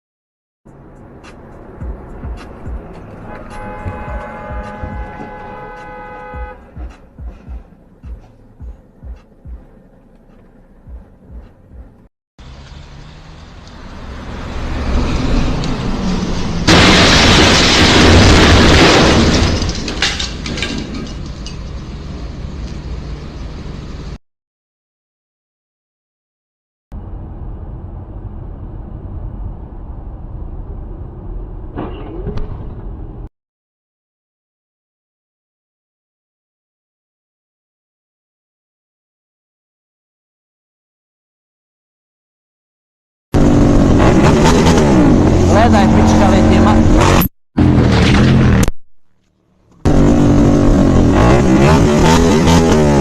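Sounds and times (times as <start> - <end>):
road and engine noise: 0.7 - 24.2, 26.9 - 33.3, 43.4 - 53.0
soft low thumps: 6.4 - 9.8, 10.8 - 12.1.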